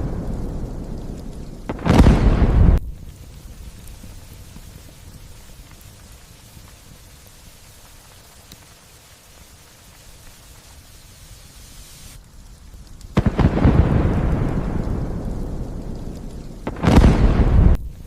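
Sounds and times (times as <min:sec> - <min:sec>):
thunder clap rumbling: 0:00.0 - 0:05.4, 0:13.1 - 0:18.0
steady rain: 0:00.0 - 0:18.0.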